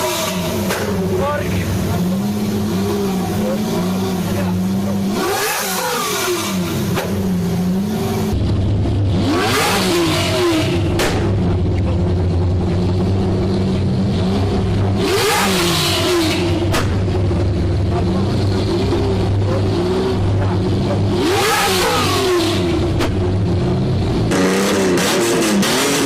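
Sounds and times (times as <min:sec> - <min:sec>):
sports car engine revving: 0:00.0 - 0:26.0.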